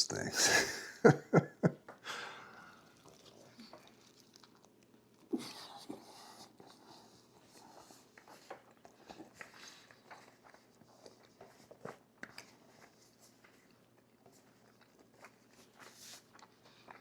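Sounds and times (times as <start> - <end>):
soft chewing: 1.8 - 17.0
long breath out: 2.0 - 2.8.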